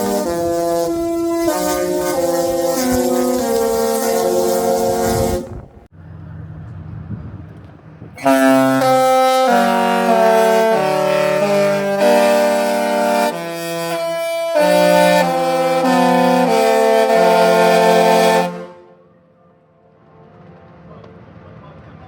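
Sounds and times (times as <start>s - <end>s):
ship horns playing a tune: 0.0s - 5.9s, 8.2s - 19.2s.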